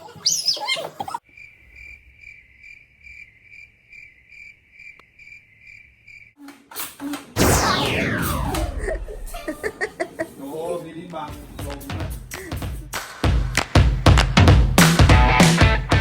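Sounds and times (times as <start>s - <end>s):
cricket chirping: 1.2s - 6.4s
downward sweeping sound: 7.4s - 9.8s.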